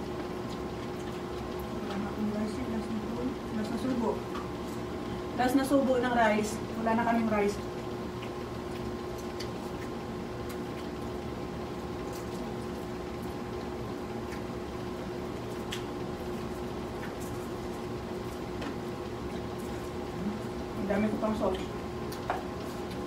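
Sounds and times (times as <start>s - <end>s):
chewing crispy fried chicken: 0.0s - 2.1s, 7.6s - 20.8s, 21.5s - 23.0s
air conditioner hum: 0.0s - 23.0s.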